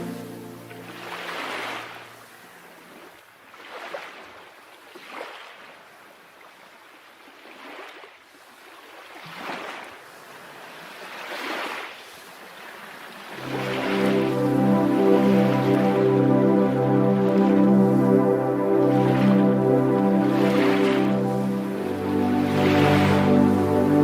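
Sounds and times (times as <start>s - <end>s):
waves breaking on shore: 0.0s - 6.0s, 7.3s - 24.0s.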